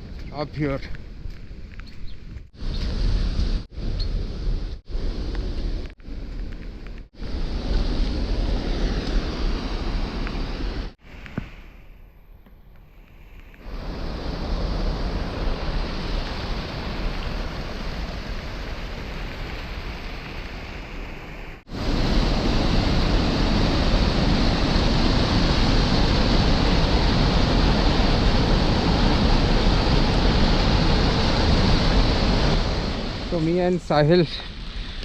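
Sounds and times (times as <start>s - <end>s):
flowing water rushing: 13.7s - 34.0s.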